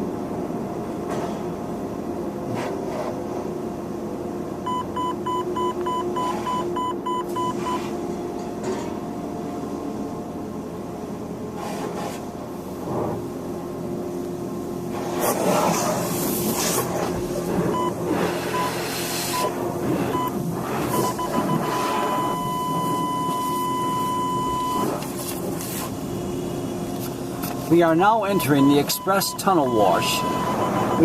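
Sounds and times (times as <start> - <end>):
machinery hum: 0.0 - 31.0
electronic beeps: 4.7 - 7.8, 17.8 - 19.5, 20.1 - 25.0, 28.3 - 31.0
hissing spray: 14.9 - 22.9.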